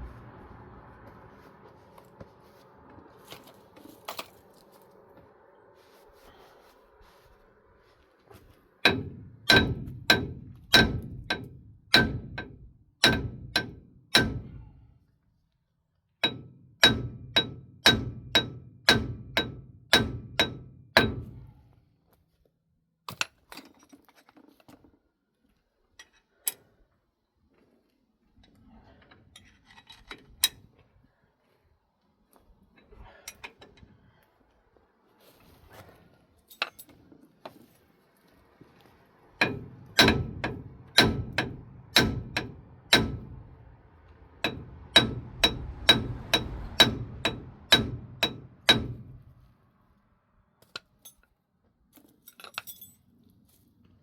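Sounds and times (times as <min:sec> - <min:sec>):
hammer striking steel: 0:08.8 - 0:14.7, 0:16.2 - 0:21.5, 0:39.4 - 0:43.7, 0:44.4 - 0:49.3
tools clinking: 0:36.5 - 0:37.0, 0:50.6 - 0:51.3, 0:52.0 - 0:53.1.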